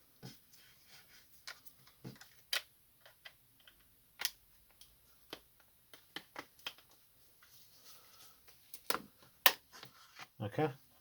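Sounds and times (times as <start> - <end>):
plastic parts clicking and tapping: 1.4 - 7.0.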